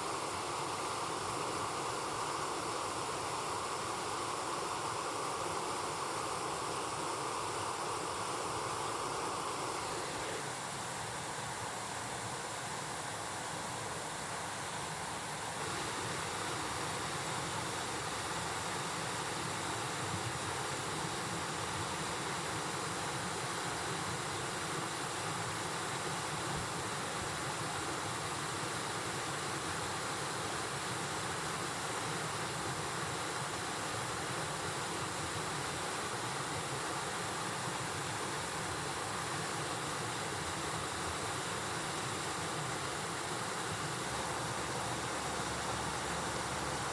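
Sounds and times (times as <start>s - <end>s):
stream rushing over rocks: 0.0s - 46.9s.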